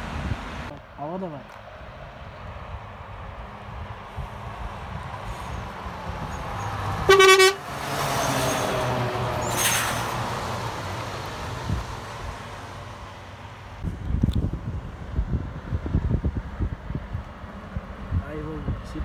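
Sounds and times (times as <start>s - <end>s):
truck engine passing: 2.0s - 13.9s
truck horn blast: 7.0s - 7.8s.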